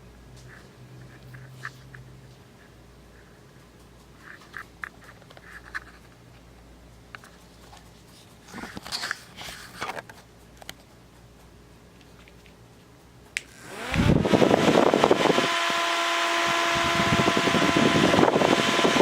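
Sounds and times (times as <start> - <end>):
rustling handling noise: 0.4 - 13.0.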